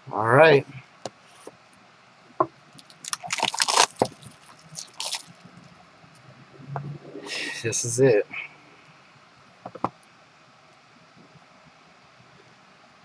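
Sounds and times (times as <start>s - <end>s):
packaging crinkling and scraping: 2.8s - 5.4s.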